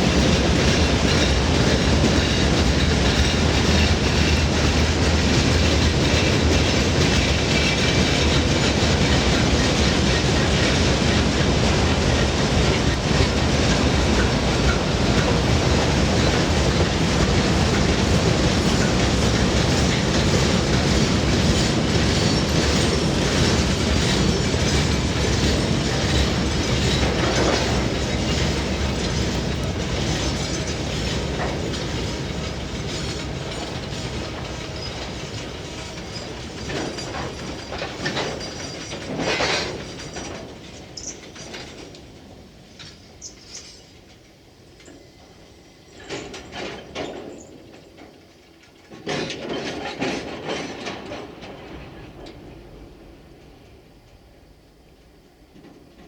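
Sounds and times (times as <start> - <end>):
freight train clickety-clack: 0.0 - 56.0
wagon clanks and squeals: 18.6 - 41.9.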